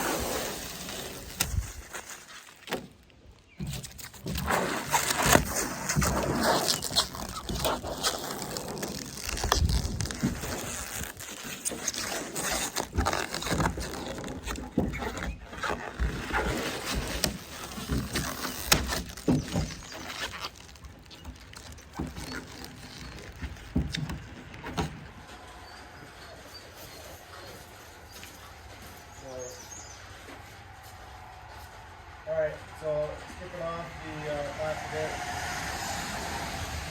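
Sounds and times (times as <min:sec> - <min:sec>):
rubber coating peeling off paint: 0:00.0 - 0:26.0.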